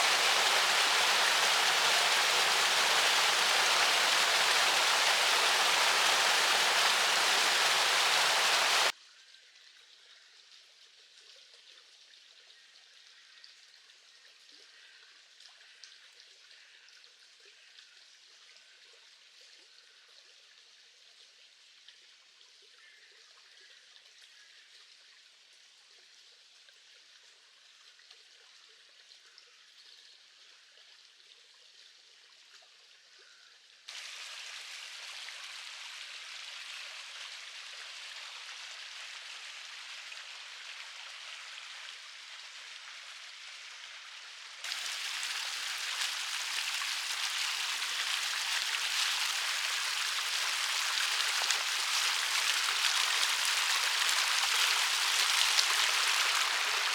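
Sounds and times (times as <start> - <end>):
river water rushing: 0.0 - 8.9, 44.7 - 56.9
water dripping and trickling: 0.0 - 56.9.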